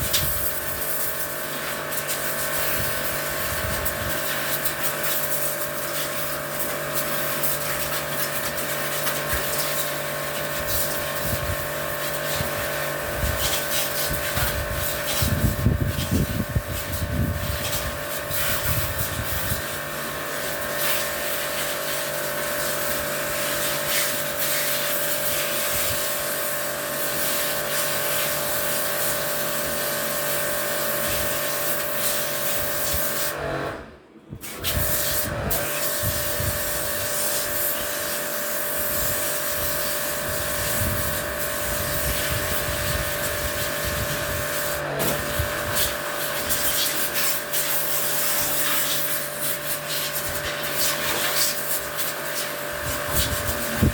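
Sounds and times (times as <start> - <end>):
electric motor machine humming: 35.3 - 53.9.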